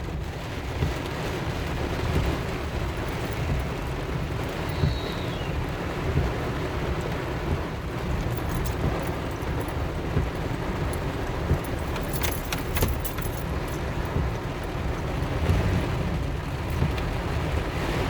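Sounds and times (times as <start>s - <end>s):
car road and engine rumble: 0.0s - 18.0s
light rattles: 8.1s - 15.4s.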